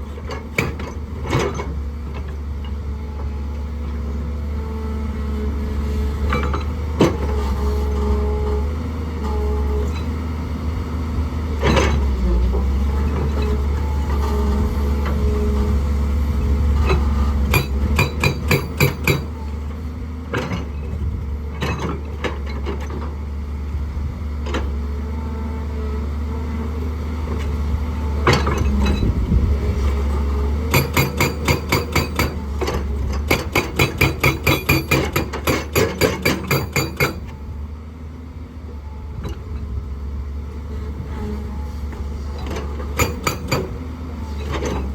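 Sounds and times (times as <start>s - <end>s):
diesel engine running: 7.2s - 44.9s
hydraulic breaker hammering rock: 16.8s - 19.5s, 30.6s - 37.4s, 42.4s - 44.9s.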